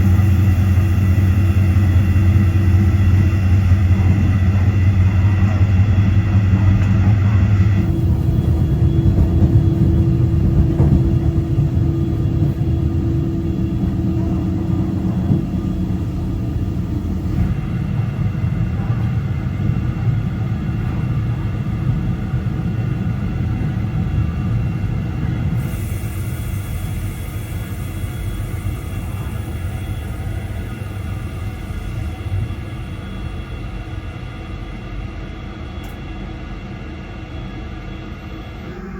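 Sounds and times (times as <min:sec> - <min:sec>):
train wheels rumbling: 0:00.0 - 0:37.8.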